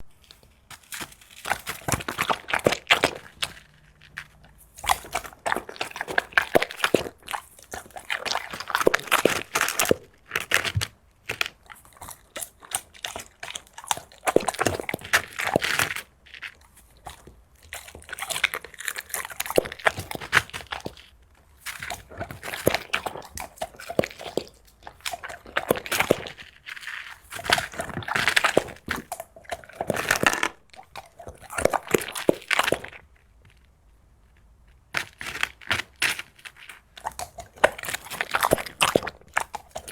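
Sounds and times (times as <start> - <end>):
dog crunching and chewing: 0.0 - 39.9.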